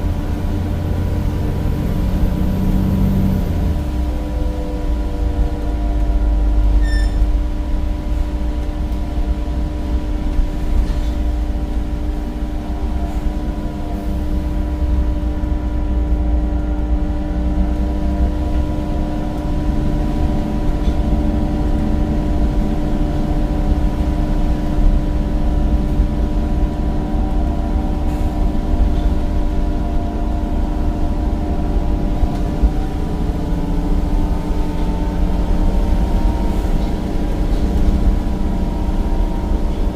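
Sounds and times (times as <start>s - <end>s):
bus diesel engine rumble: 0.0s - 39.9s.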